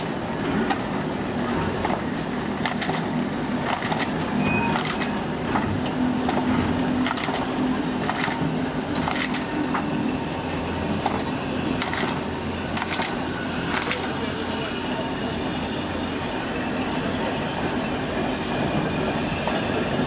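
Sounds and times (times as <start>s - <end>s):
wheels clicking over rail joints: 0.0s - 14.4s
train rumbling: 0.0s - 20.0s.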